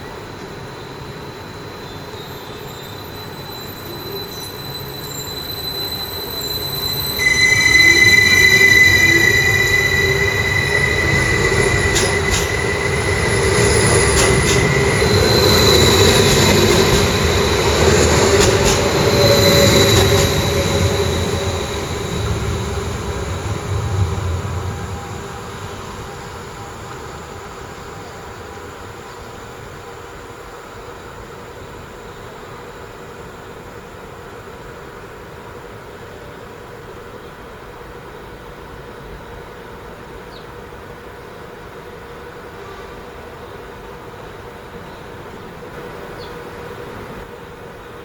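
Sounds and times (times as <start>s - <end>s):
high wheel squeal: 2.0s - 29.5s
train rumbling: 2.2s - 31.9s.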